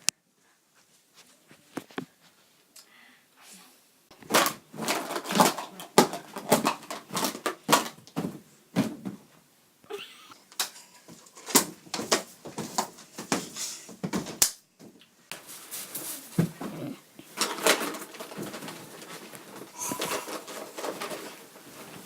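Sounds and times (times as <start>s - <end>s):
rustling: 15.4s - 22.0s.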